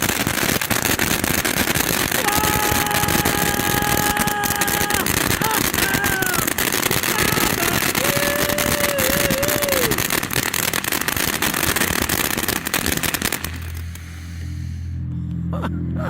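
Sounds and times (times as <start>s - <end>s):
fireworks crackling: 0.0s - 14.8s
wavering firework whistle: 0.0s - 14.8s
low steady hum: 13.4s - 16.0s.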